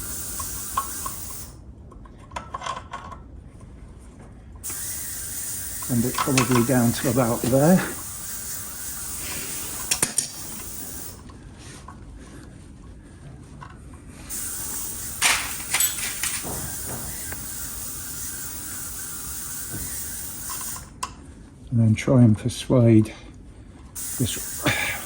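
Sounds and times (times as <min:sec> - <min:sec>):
steady hiss: 0:00.0 - 0:01.6, 0:04.6 - 0:11.3, 0:14.3 - 0:21.0, 0:24.0 - 0:25.0
clicks and knocks of metal parts: 0:02.0 - 0:03.2, 0:05.8 - 0:07.9, 0:14.8 - 0:17.5.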